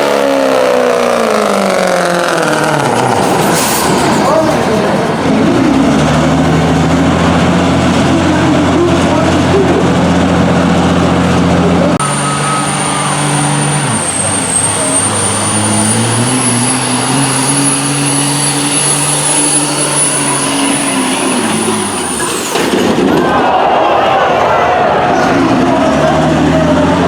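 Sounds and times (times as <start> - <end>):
diesel truck engine at high revs: 0.0 - 23.1, 24.6 - 27.0
turbo whistle: 12.0 - 22.3.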